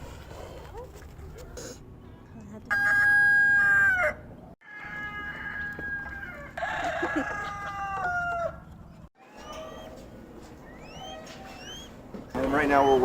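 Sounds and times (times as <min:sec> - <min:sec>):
roosters crowing: 0:02.7 - 0:10.0.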